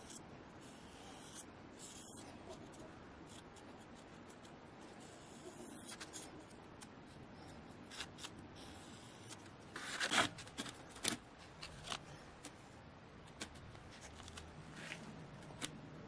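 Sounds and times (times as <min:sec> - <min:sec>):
hand rubbing and scraping: 0:08.0 - 0:15.8.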